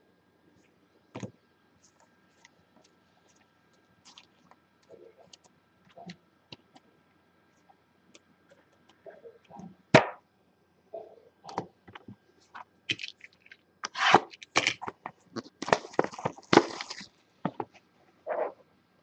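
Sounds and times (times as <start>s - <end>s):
wrapper crinkling: 12.9s - 17.1s
cardboard scraping: 13.8s - 17.1s.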